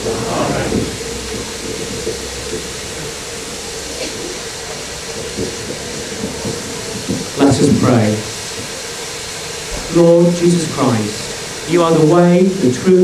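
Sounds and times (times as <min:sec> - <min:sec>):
low rumble: 0:00.0 - 0:02.4
steam hissing from locomotive: 0:00.0 - 0:13.0.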